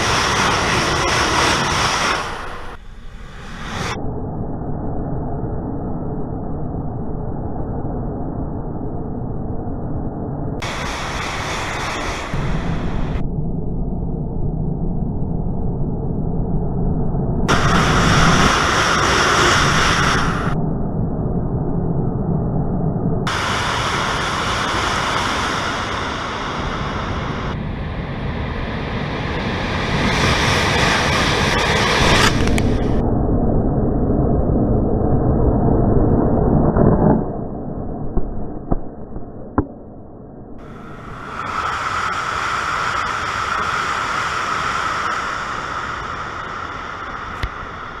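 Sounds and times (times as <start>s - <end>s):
high-speed train rushing past: 0.0s - 4.0s, 10.6s - 13.2s, 17.5s - 20.6s, 23.3s - 33.0s, 40.6s - 48.0s
sharp click: 32.1s - 32.7s.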